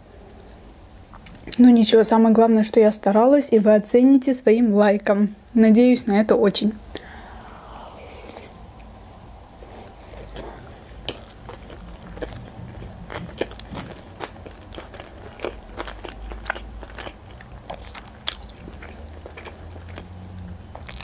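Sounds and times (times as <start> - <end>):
chewing with wet clicks and crunches: 0.3 - 1.7, 11.2 - 21.0.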